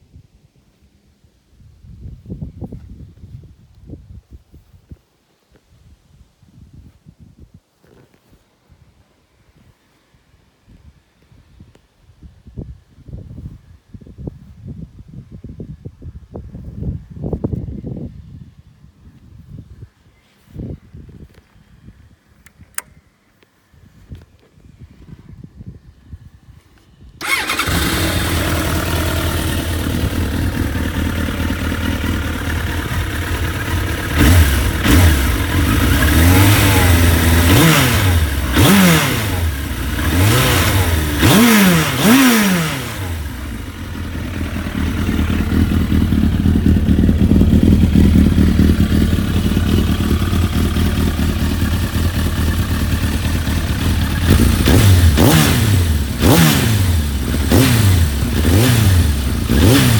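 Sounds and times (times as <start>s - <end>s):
motorcycle engine revving: 27.2s - 59.9s.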